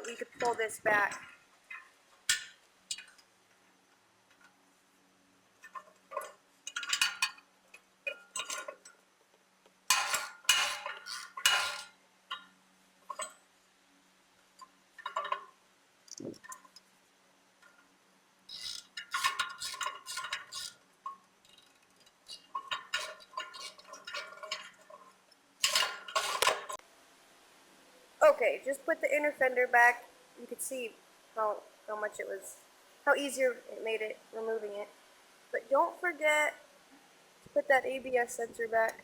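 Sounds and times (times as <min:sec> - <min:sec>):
metal hand tools clinking: 0:25.6 - 0:26.8.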